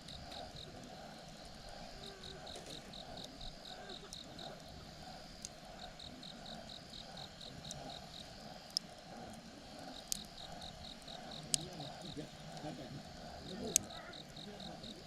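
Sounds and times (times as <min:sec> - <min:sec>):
campfire crackling and popping: 0:00.0 - 0:15.0
insect chirping: 0:00.0 - 0:15.0.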